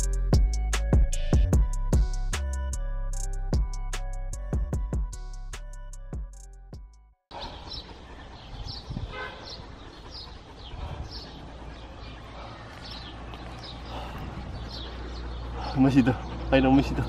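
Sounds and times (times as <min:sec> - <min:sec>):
music: 0:00.0 - 0:07.2
bird chirping: 0:07.3 - 0:17.0.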